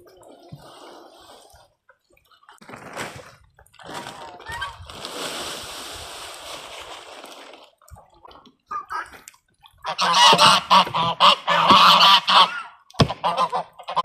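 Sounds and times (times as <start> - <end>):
water splashing: 0.0 - 12.6
geese honking: 9.8 - 14.0.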